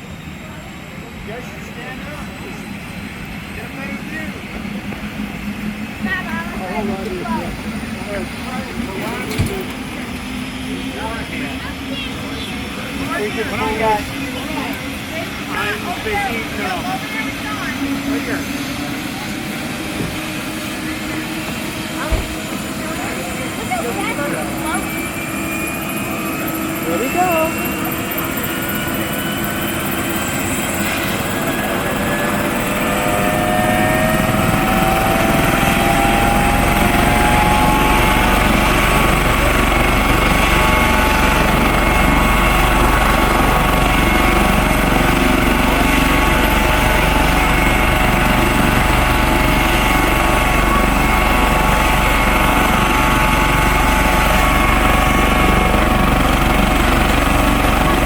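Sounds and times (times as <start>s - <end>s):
helicopter turbine whine: 0.0s - 58.0s.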